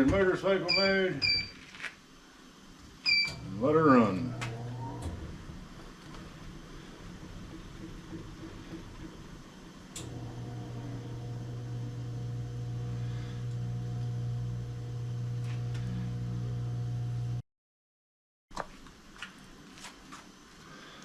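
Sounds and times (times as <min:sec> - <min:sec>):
wheel balancer motor hum: 0:03.4 - 0:17.4.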